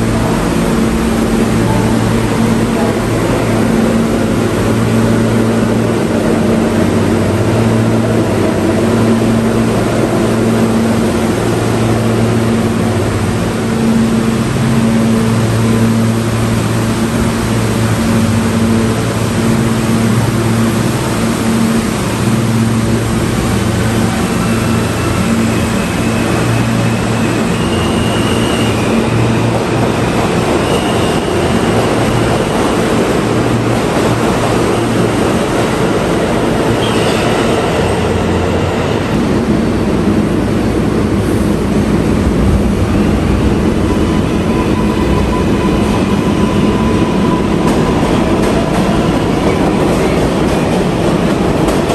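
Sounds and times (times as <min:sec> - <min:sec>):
rail and wheel noise: 0:00.0 - 0:51.9
subway train motor hum: 0:00.0 - 0:51.9.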